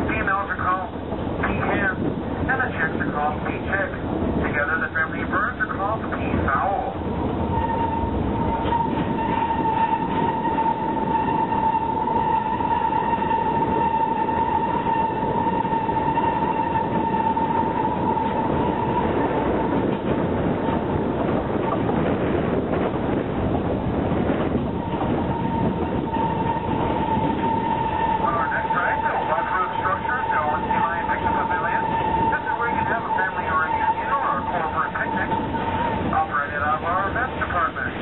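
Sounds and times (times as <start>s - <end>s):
train rolling: 0.0s - 38.0s
high-pitched wheel squeal: 7.5s - 19.3s, 24.7s - 36.2s.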